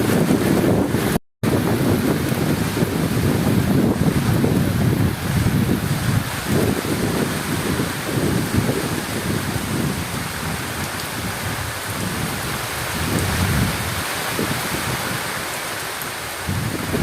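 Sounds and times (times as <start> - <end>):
low rolling thunder: 0.0 - 15.3, 16.4 - 17.0
heavy rain: 0.0 - 17.0.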